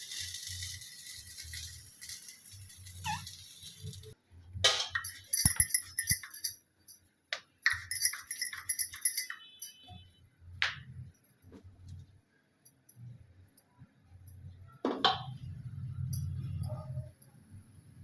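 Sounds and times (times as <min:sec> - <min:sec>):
metal utensils clinking: 0:00.0 - 0:06.6, 0:07.7 - 0:09.8.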